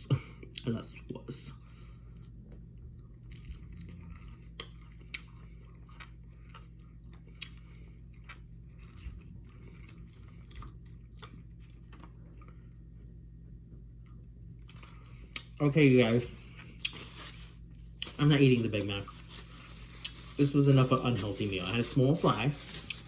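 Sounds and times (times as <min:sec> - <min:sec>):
person chewing food: 0:02.1 - 0:15.6, 0:16.3 - 0:18.2
small crunches: 0:16.4 - 0:23.0.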